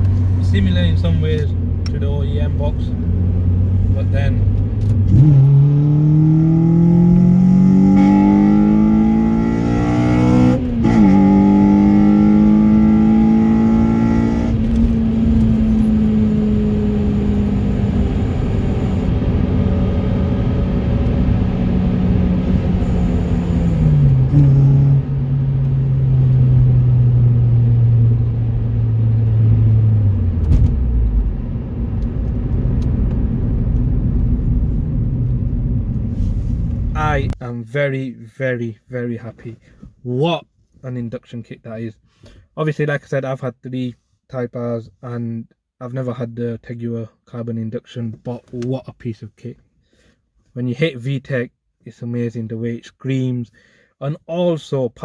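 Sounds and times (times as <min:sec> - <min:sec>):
car engine accelerating: 0:00.0 - 0:37.4.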